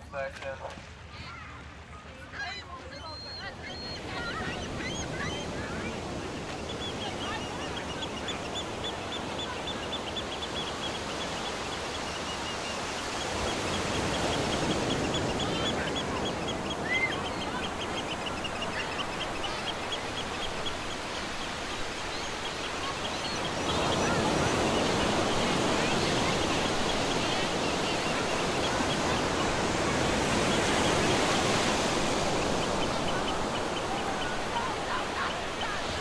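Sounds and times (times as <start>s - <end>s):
bird rising chirp: 3.0s - 29.6s.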